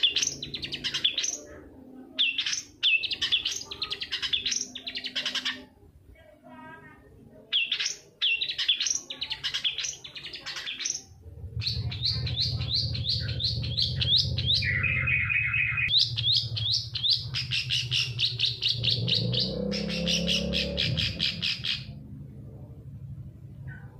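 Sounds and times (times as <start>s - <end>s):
bird singing sharp notes: 7.5s - 22.0s
steady low hum: 11.2s - 23.9s.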